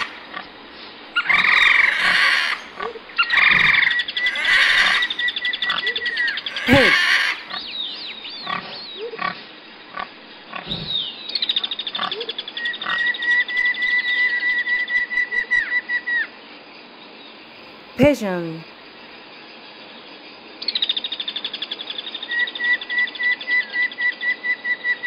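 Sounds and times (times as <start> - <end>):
pigs grunting and squealing: 1.2 - 7.7, 8.4 - 9.4.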